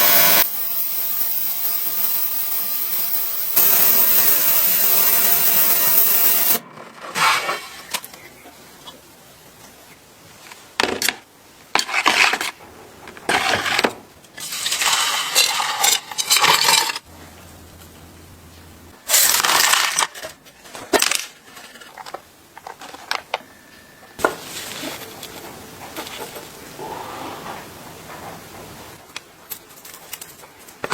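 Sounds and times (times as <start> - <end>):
metal parts clinking and scraping: 14.4 - 17.1, 19.0 - 23.2.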